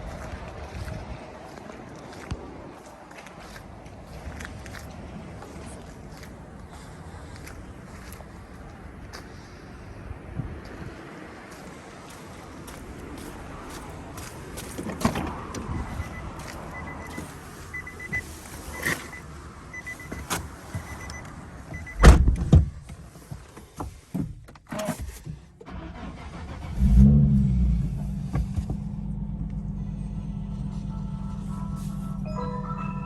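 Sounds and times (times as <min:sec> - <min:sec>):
car engine starting and idling: 0:12.3 - 0:22.9, 0:25.6 - 0:33.0
electronic warning beep: 0:15.8 - 0:19.2, 0:19.8 - 0:20.2, 0:20.9 - 0:21.2
heavy thump: 0:22.0 - 0:22.8.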